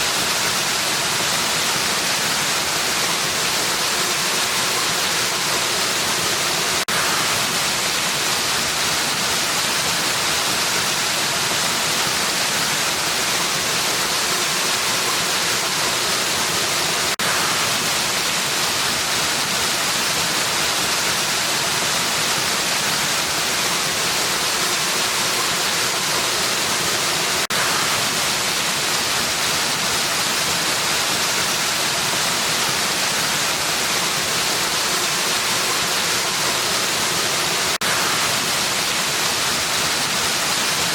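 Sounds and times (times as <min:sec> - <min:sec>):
waterfall hiss: 0:00.0 - 0:40.9.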